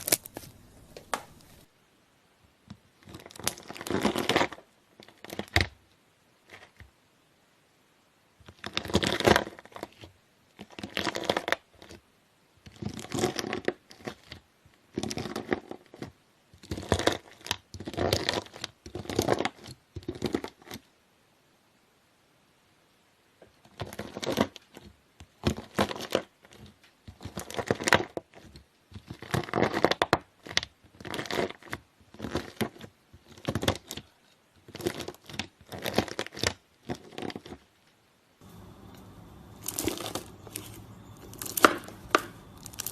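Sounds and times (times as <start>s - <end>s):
knife slicing crunchy slime: 0.0s - 1.4s, 39.6s - 42.9s.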